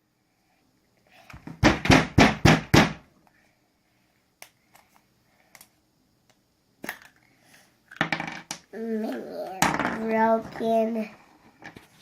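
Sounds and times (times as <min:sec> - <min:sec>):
plastic toys knocking together: 0:07.9 - 0:10.4.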